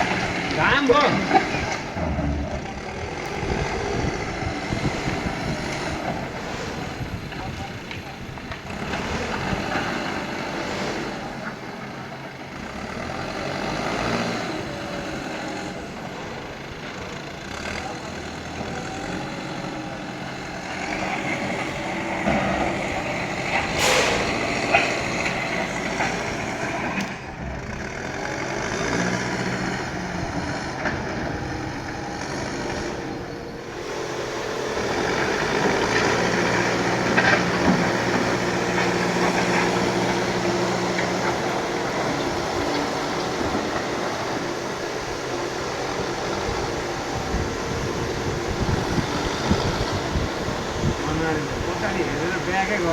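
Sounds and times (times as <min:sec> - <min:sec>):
diesel engine working under load: 0:00.0 - 0:52.9
short sharp noise: 0:23.7 - 0:24.6.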